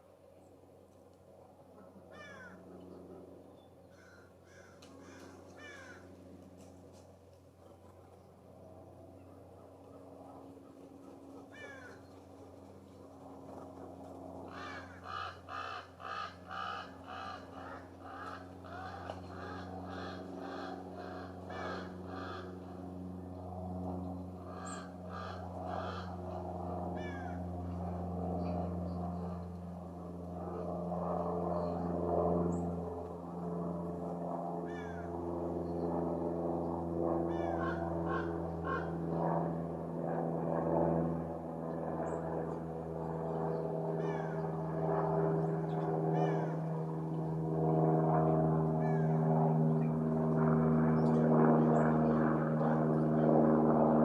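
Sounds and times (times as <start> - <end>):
propeller aircraft drone: 0.0 - 54.0
wild birds calling and chipping: 2.1 - 6.0, 10.6 - 12.4, 14.5 - 22.8, 24.1 - 26.4, 27.0 - 27.4, 34.7 - 35.9, 37.3 - 38.9, 43.4 - 46.8, 48.8 - 49.2.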